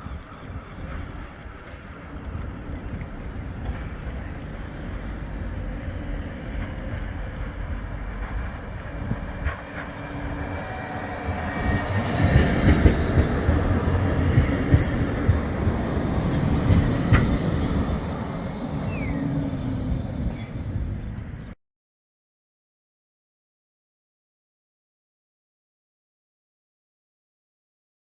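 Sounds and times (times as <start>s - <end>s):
steel wheels rumbling on rail: 0.0s - 21.6s
tram passing: 0.0s - 21.6s
high-pitched wheel squeal: 9.0s - 21.4s.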